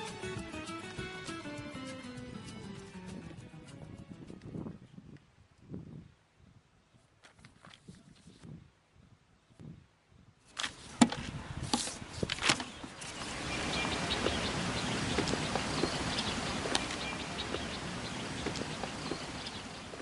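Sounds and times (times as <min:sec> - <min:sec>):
steady hiss: 0:10.7 - 0:20.0
faint high bird chirps: 0:12.7 - 0:20.0.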